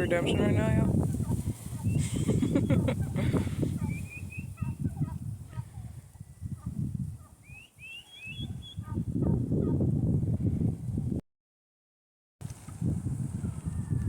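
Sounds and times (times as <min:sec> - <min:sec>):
low rumbling microphone noise: 0:00.0 - 0:07.4, 0:08.4 - 0:11.2, 0:12.5 - 0:14.0
turkey poults peeping: 0:01.1 - 0:05.6, 0:06.6 - 0:09.0.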